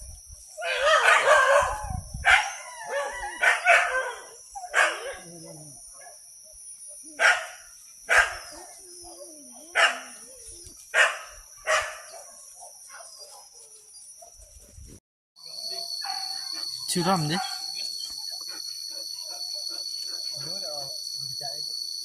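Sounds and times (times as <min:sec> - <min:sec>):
insects humming: 0:00.0 - 0:14.7, 0:15.4 - 0:22.0
dog barking: 0:00.6 - 0:06.2, 0:07.2 - 0:08.6, 0:09.7 - 0:10.2, 0:11.0 - 0:13.5, 0:15.7 - 0:20.8.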